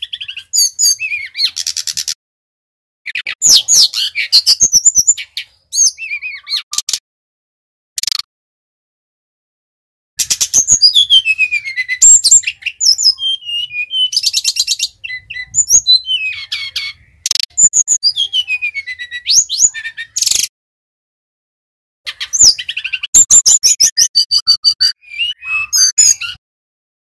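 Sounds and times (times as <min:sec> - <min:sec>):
bird singing trills and whistles: 0:00.0 - 0:02.2, 0:03.1 - 0:07.0, 0:10.2 - 0:20.5, 0:22.1 - 0:26.4.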